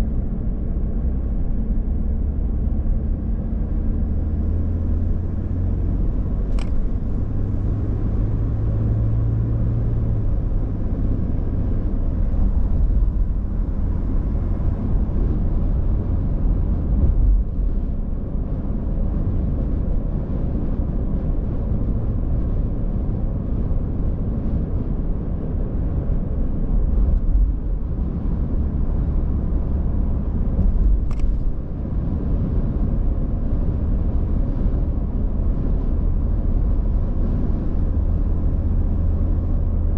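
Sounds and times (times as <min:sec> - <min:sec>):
car engine and tyre rumble: 0:00.0 - 0:39.9
brief clicks: 0:06.5 - 0:06.9, 0:30.6 - 0:31.5.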